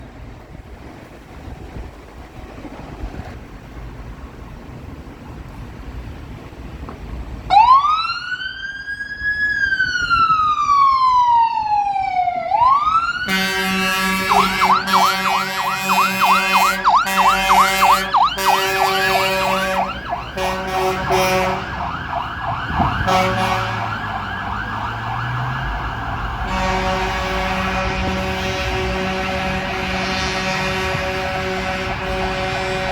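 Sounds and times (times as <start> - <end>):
siren yelp: 7.5 - 31.0
fire engine siren wailing: 7.5 - 32.9
multi-tone air horns blasting: 13.0 - 32.9.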